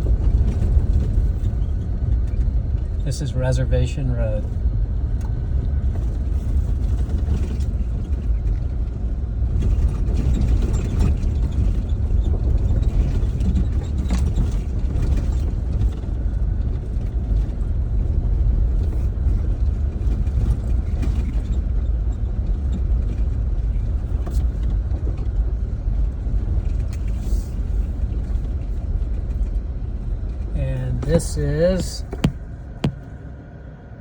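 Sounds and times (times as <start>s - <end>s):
car engine and road rumble: 0.0s - 34.0s
knocks and rattles from bumps: 31.0s - 33.2s.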